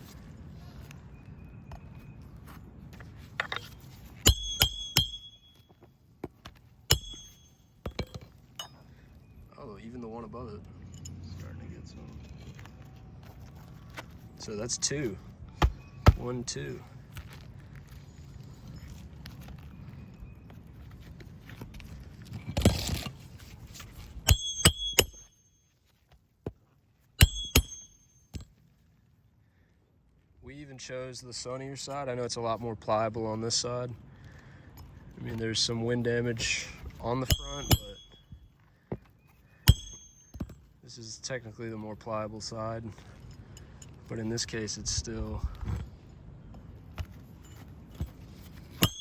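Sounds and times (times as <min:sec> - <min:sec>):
hammer striking nails: 0:04.2 - 0:05.6, 0:06.9 - 0:08.2, 0:24.3 - 0:25.3, 0:27.2 - 0:28.4, 0:37.3 - 0:38.2, 0:39.7 - 0:40.6, 0:48.7 - 0:49.0
rustle: 0:11.2 - 0:24.3.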